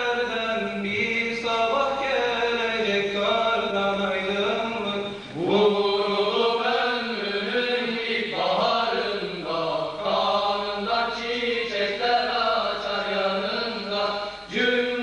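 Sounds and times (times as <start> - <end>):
sung chant notes: 0.0 - 15.0.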